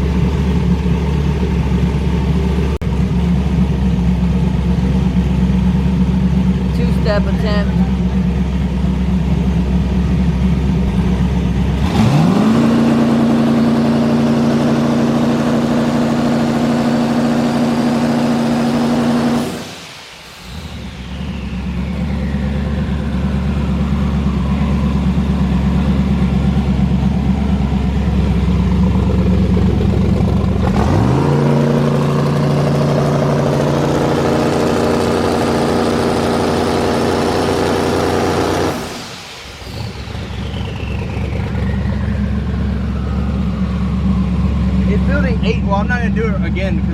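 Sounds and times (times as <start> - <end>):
car engine revving on the brake: 10.9 - 19.9, 20.5 - 46.9
turbo whistle: 20.5 - 25.4.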